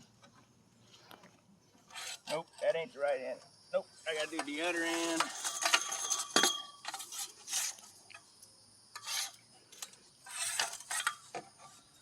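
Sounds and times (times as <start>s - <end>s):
metal scraping and clinking: 4.1s - 7.9s, 9.0s - 11.3s.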